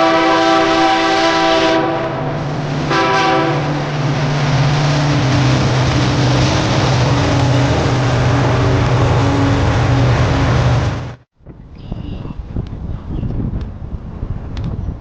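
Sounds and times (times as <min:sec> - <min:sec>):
locomotive air horn: 0:00.0 - 0:03.8
train drone and rumble: 0:00.0 - 0:15.0.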